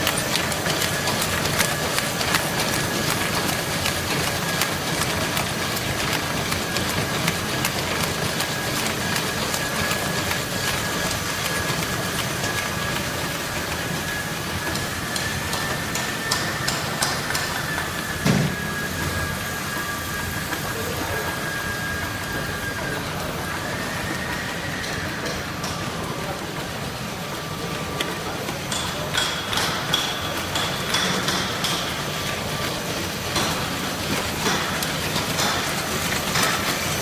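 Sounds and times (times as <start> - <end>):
machine clicking and knocking: 0.0 - 18.5, 28.0 - 37.0
high machine whine: 0.0 - 29.2.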